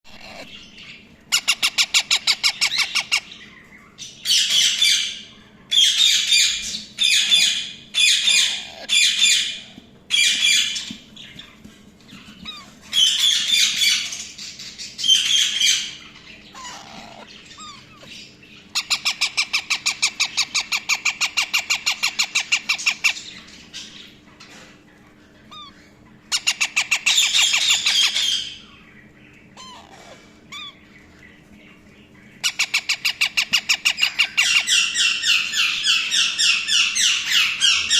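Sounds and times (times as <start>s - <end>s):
parrots squawking: 0.0s - 3.5s, 4.2s - 11.4s, 12.2s - 24.0s, 25.5s - 28.8s, 29.5s - 31.0s, 32.4s - 37.9s.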